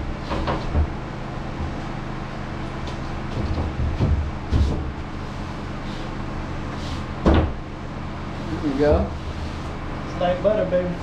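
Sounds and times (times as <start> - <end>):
steady low hum: 0.0 - 11.0
drywall sheets knocking and thumping: 3.2 - 5.1, 7.2 - 7.6.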